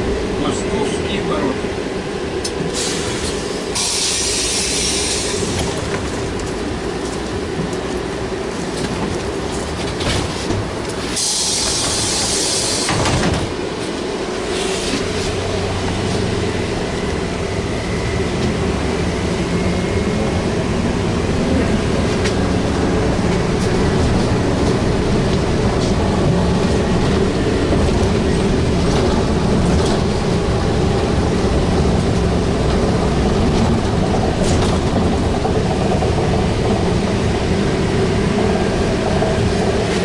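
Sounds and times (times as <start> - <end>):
trolleybus electric drive hum: 0.0 - 40.0
loud hiss bursts: 2.8 - 5.6, 11.2 - 13.1.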